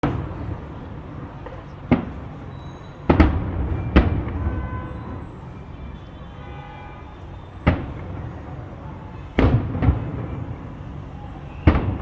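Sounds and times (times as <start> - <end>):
fireworks bangs with rolling echo: 0.0 - 6.0, 7.5 - 12.0.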